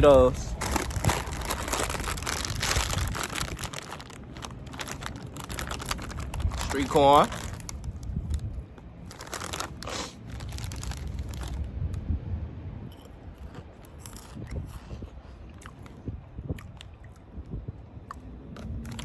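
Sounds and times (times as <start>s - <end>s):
person crunching corn snacks: 0.5s - 8.1s, 9.1s - 11.6s, 13.4s - 15.0s, 18.6s - 19.0s.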